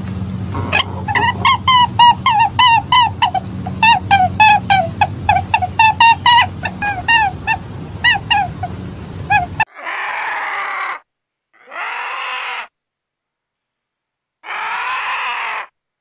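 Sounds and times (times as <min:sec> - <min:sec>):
low steady hum: 0:00.0 - 0:09.7
vulture rasping calls: 0:00.4 - 0:10.9, 0:14.4 - 0:15.7.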